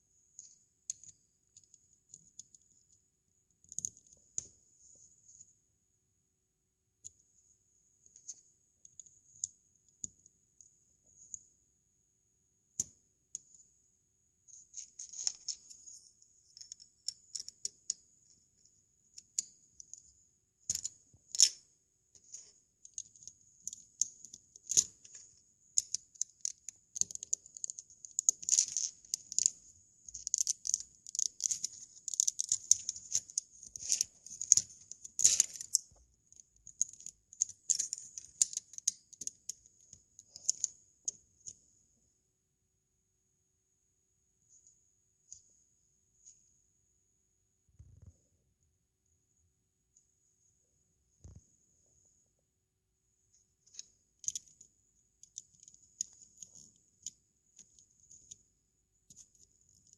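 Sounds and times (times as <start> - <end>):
plastic bricks clicking together: 22.8 - 25.2, 25.8 - 35.9, 36.6 - 39.6, 53.7 - 54.6.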